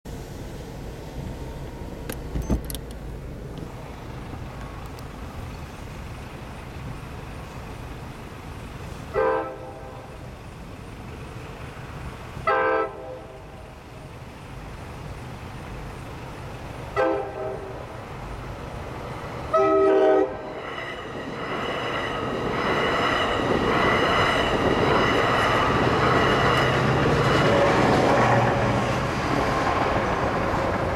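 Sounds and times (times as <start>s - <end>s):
train passing: 0.1s - 2.3s, 2.9s - 30.9s
train horn blasts: 9.1s - 10.0s, 12.4s - 13.4s, 17.0s - 17.8s, 19.5s - 20.5s, 27.4s - 28.8s.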